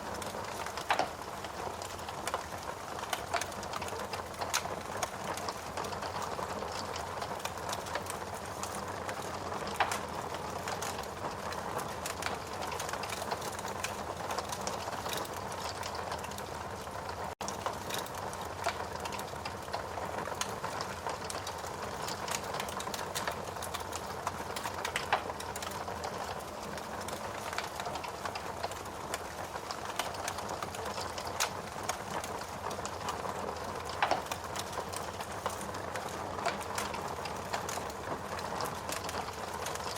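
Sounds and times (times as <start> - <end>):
logs crackling in fireplace: 0.0 - 39.9.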